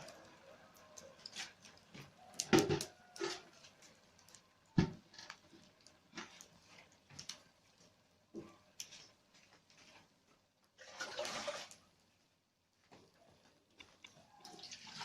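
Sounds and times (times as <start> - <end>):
knocks and clicks of objects handled: 1.0 - 6.5.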